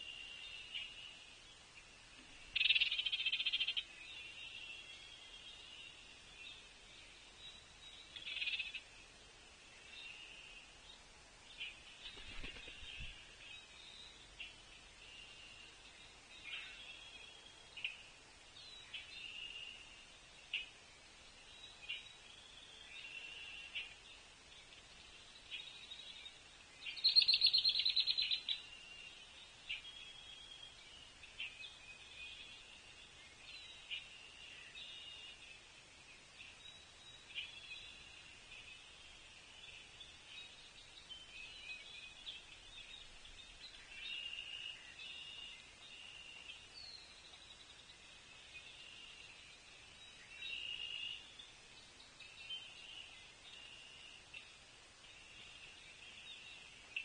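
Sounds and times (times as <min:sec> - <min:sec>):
wild birds singing and calling: 0:00.0 - 0:57.0
frogs calling: 0:02.6 - 0:03.9.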